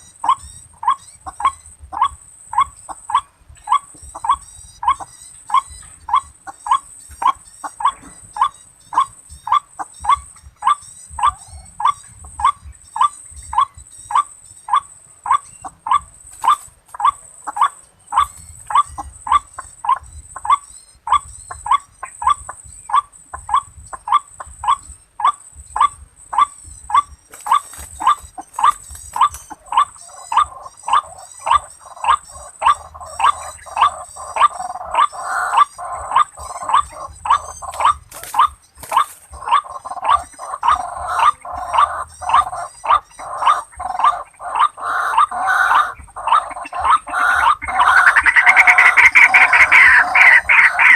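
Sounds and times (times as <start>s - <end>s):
waterhen calls: 0.0s - 50.9s.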